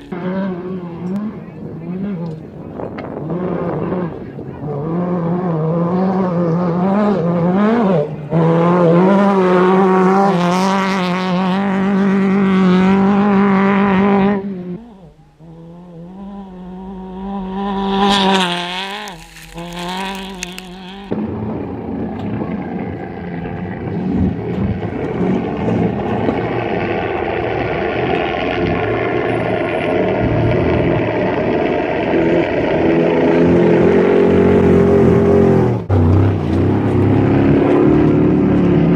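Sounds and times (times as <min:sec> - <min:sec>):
race vehicle engines at full speed: 0:00.0 - 0:38.9
rough engine sound: 0:00.0 - 0:38.9
gravel and tyre hiss: 0:17.9 - 0:21.1.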